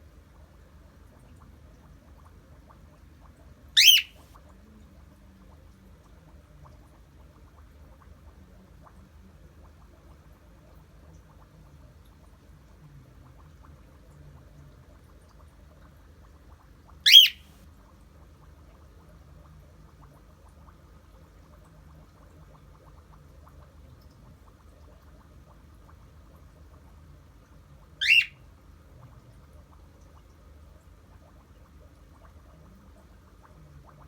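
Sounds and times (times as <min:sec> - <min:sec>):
faint low hum: 0:00.0 - 0:34.0
cockatiel squawk-whistle: 0:03.8 - 0:04.2, 0:17.1 - 0:17.5, 0:28.0 - 0:28.4.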